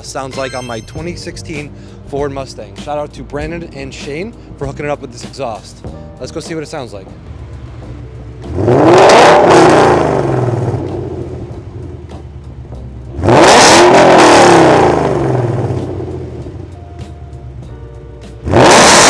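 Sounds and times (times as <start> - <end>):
car engine revving from idle: 7.6 - 12.4, 13.1 - 16.8, 18.4 - 19.0.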